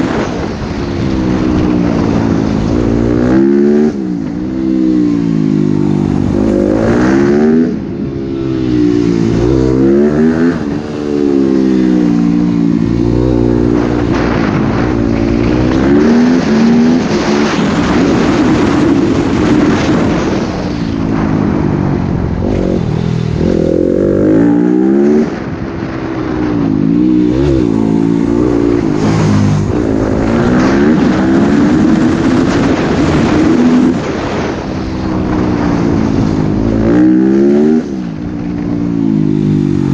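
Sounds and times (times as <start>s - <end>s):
motocross bike engine revving: 1.4s - 20.4s, 22.4s - 26.0s, 26.6s - 34.6s.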